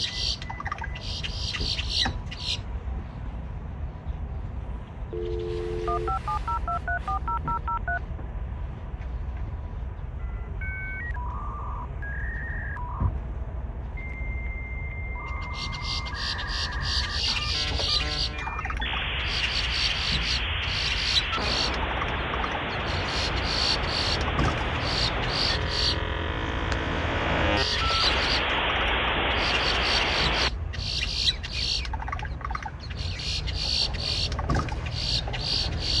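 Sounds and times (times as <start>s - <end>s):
quick high chirps and clicks: 0.0s - 1.3s, 15.4s - 26.0s
grackles calling: 0.0s - 2.6s, 15.2s - 36.0s
steady low rumble: 2.6s - 36.0s
electronic modem tones: 5.2s - 8.0s, 10.2s - 13.2s, 14.0s - 30.5s
harsh static-like hiss: 16.4s - 31.8s.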